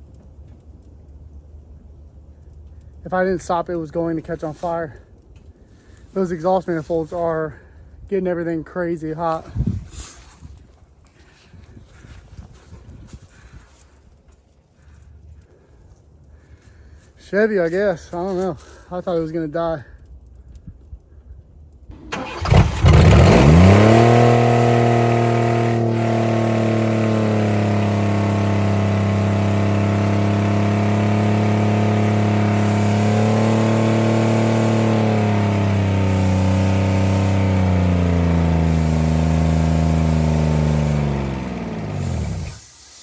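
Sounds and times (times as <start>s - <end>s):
car engine revving: 22.0s - 42.6s.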